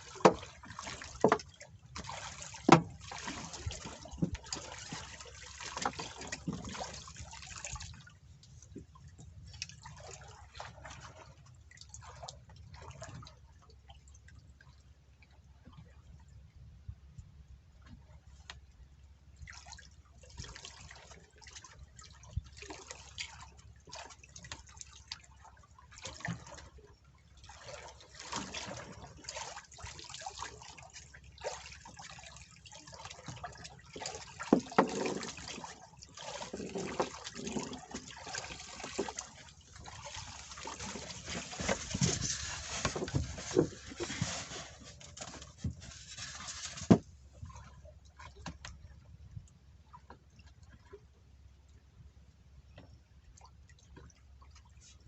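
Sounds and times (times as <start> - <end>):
water splashing and dripping: 0.0 - 14.4, 19.4 - 49.0.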